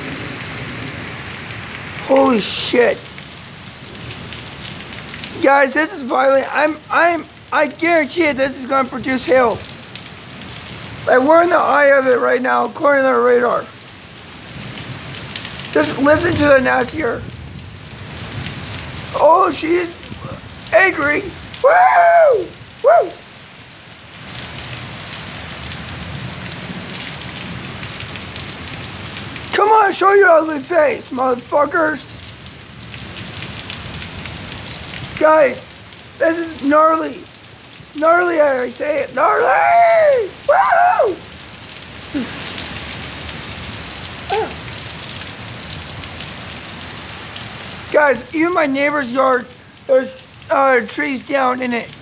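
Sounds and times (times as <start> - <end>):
heavy rain pouring: 0.0 - 52.0
short voice sound: 44.3 - 44.6.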